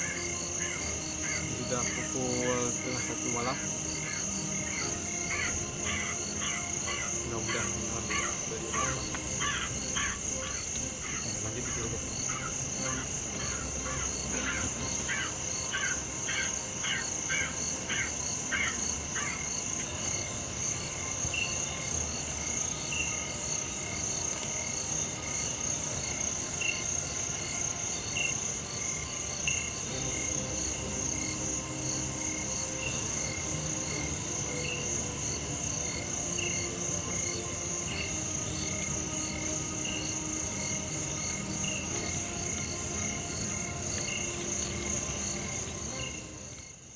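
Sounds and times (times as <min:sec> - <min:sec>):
animal calling: 0:00.0 - 0:19.5, 0:36.2 - 0:46.6
insects chirring: 0:00.0 - 0:46.9.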